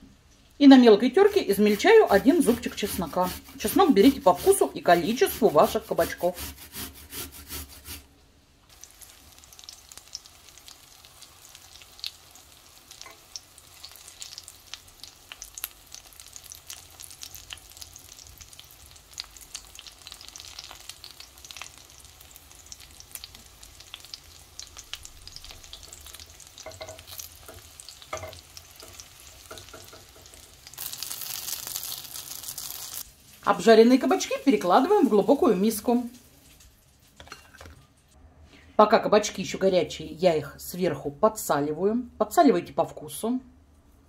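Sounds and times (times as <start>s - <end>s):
food sizzling in hot oil: 1.1s - 8.0s, 8.7s - 36.7s.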